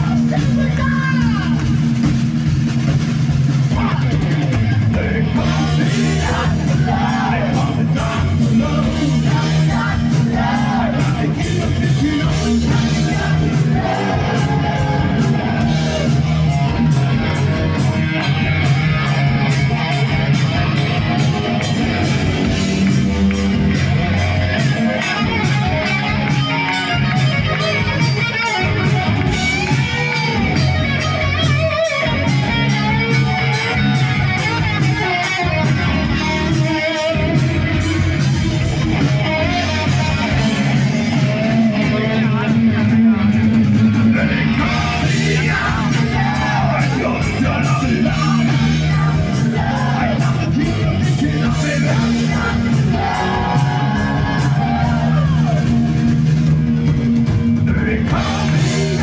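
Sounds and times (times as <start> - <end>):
bass: 0.0 - 59.0
drum kit beat: 0.0 - 59.0
electric guitar: 0.0 - 59.0
person singing: 39.5 - 55.8, 57.7 - 59.0.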